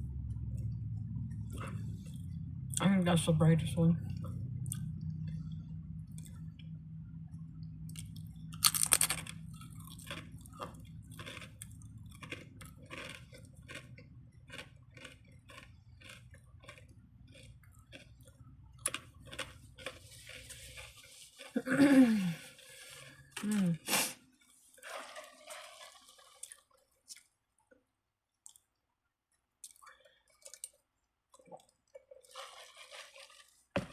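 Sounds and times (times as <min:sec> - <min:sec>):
low steady hum: 0:00.0 - 0:33.9
chewing sandwich: 0:07.9 - 0:21.8, 0:24.2 - 0:27.3, 0:29.6 - 0:33.9.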